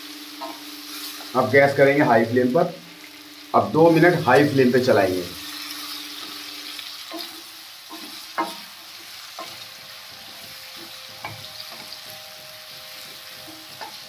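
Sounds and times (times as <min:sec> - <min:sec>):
fruit sizzling in a pan: 0:00.0 - 0:14.0
spatula scraping a pan: 0:05.4 - 0:09.6
spatula knocking against a pan: 0:07.9 - 0:08.6.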